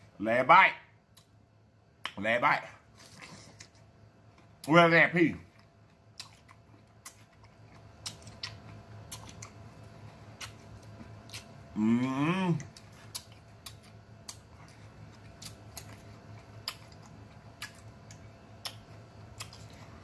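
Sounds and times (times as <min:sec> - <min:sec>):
wet mouth clicks chewing: 0:05.6 - 0:09.6, 0:10.3 - 0:11.6, 0:12.6 - 0:19.9
person humming: 0:11.8 - 0:12.7.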